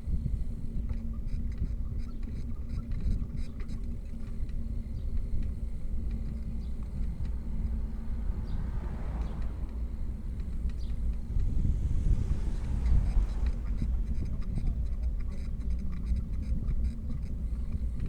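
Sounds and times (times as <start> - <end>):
wind and road noise: 0.0 - 18.0
rushing noise: 5.8 - 16.4.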